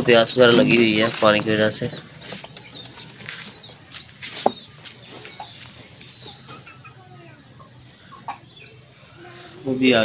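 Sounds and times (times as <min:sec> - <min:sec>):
faint lower bird calls: 0:00.0 - 0:09.8
birds chirping high calls: 0:00.0 - 0:10.0.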